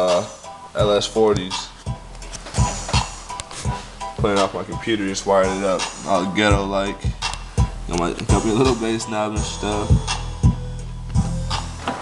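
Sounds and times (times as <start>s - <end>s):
bass-heavy music: 0.0s - 12.0s.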